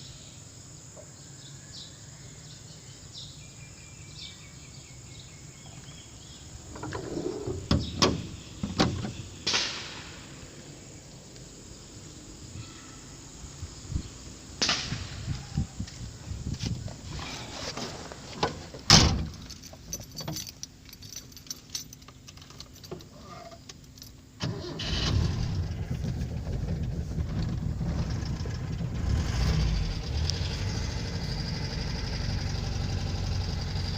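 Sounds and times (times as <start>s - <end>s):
car engine idling: 24.5s - 33.9s.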